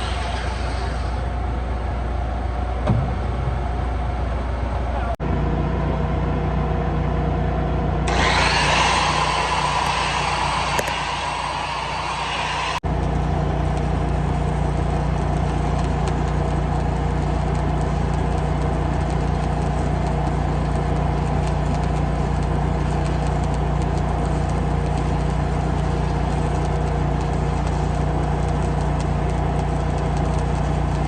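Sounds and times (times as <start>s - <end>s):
welding arc crackle: 0.0s - 1.4s, 8.1s - 31.0s
welding machine hum: 0.0s - 2.5s, 4.6s - 31.0s.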